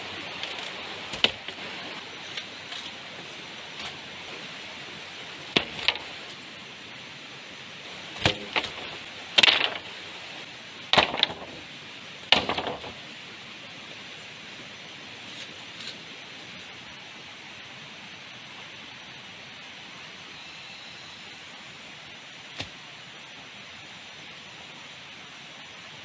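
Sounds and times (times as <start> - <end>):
steady rain hiss: 0.0 - 26.0
sharp wooden strikes: 1.1 - 1.6, 5.5 - 6.2, 8.0 - 10.0, 10.9 - 11.7, 12.3 - 13.0.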